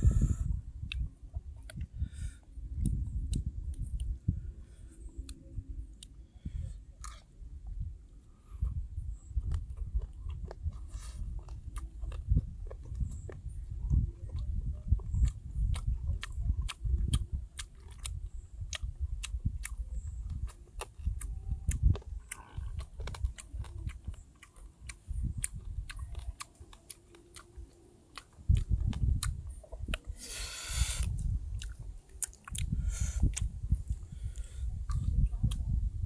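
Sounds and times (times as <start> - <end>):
person chewing crunchy food: 8.4 - 35.6.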